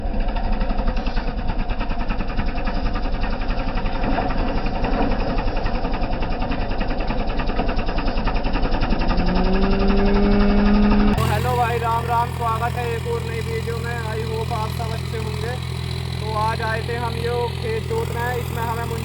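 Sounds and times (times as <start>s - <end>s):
tractor diesel engine chugging: 11.2s - 19.0s.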